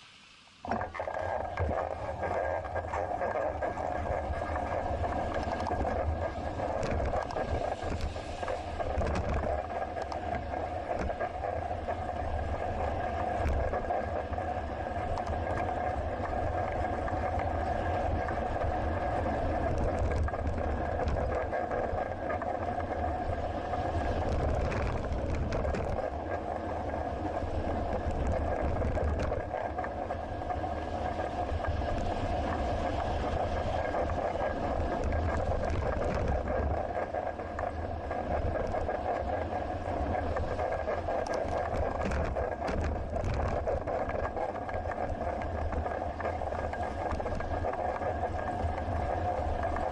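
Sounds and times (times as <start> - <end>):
constant hum: 0.0 - 49.9
faint clicks: 0.7 - 11.6, 15.0 - 18.7, 27.9 - 30.0, 33.6 - 49.9
road and wind rumble: 2.7 - 49.9.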